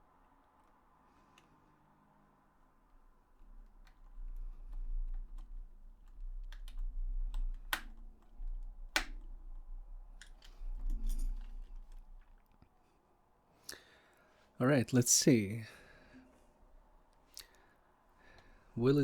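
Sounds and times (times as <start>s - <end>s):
low handling rumble: 2.9s - 12.5s
plastic controller clicks and taps: 8.9s - 9.3s.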